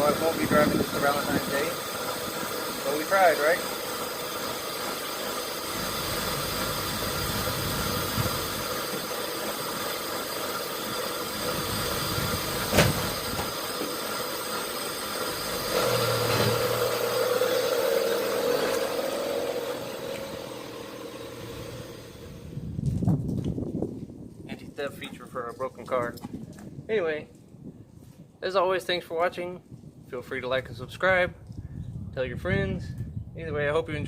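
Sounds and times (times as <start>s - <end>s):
car engine running: 0.0s - 22.7s
low hum: 10.9s - 23.1s.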